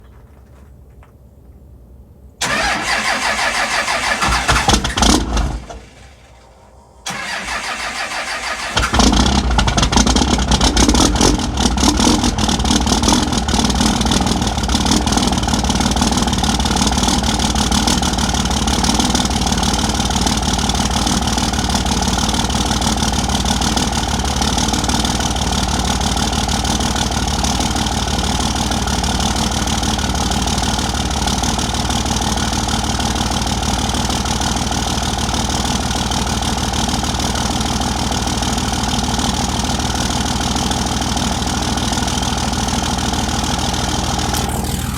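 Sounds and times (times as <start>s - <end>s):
diesel engine cranking: 2.4s - 38.2s, 39.9s - 44.9s
diesel engine running: 2.4s - 44.9s.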